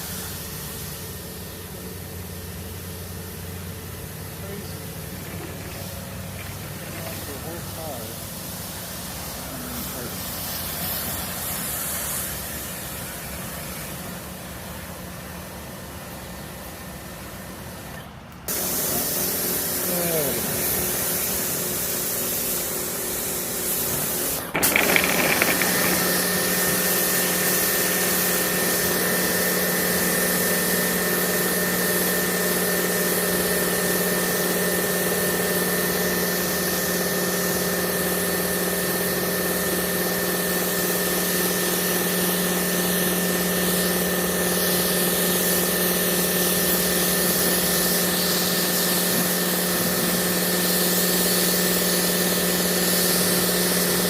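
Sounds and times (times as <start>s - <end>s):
pressure washer motor humming: 2.5s - 11.0s, 18.5s - 31.6s.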